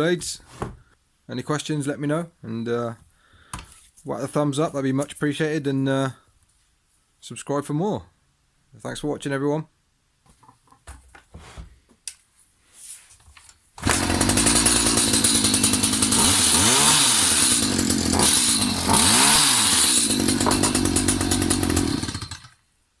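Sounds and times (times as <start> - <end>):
hedge trimmer engine running: 13.8 - 22.6.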